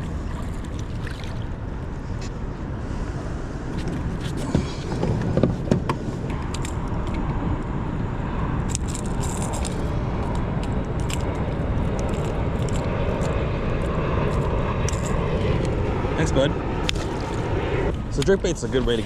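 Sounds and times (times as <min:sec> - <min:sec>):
motorboat engine running: 0:00.0 - 0:01.9.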